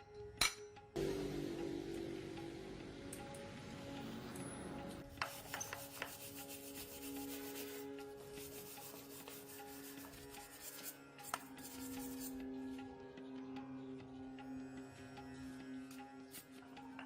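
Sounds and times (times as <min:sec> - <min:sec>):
soft background music: 0:00.0 - 0:17.0
hand sanding strokes: 0:05.2 - 0:12.3.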